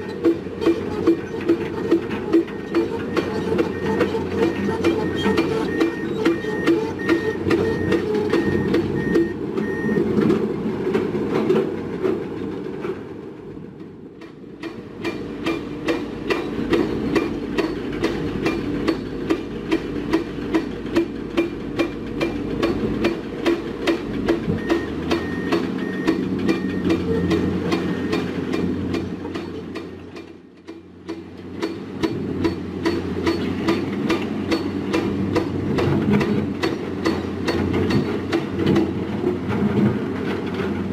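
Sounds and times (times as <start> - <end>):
diesel engine drone: 0.0 - 40.9
reversing alarm beeping: 2.4 - 10.1, 24.6 - 28.3.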